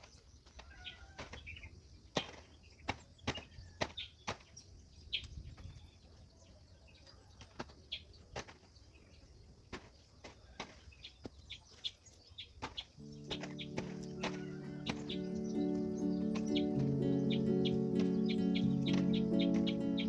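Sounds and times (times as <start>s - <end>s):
high chirps: 13.0s - 20.0s
music: 13.0s - 20.0s.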